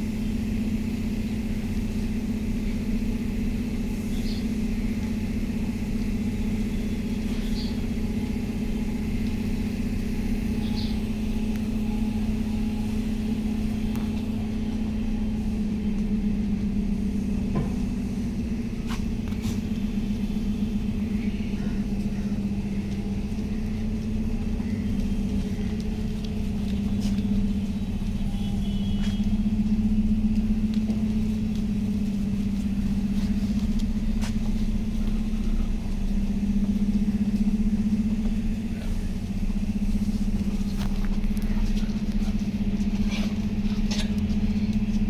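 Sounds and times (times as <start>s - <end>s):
low mechanical hum: 0.0s - 45.0s.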